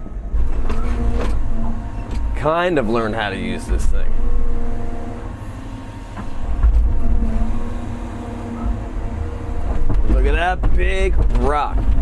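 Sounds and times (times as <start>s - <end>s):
excavator diesel engine droning: 0.0s - 12.0s.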